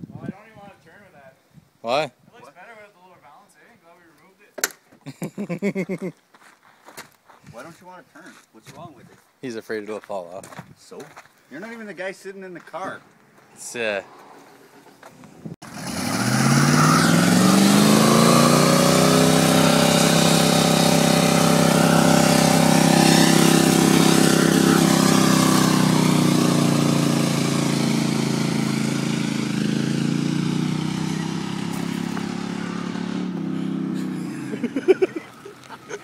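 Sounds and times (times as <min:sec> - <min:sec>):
truck engine revving: 0:15.6 - 0:36.0.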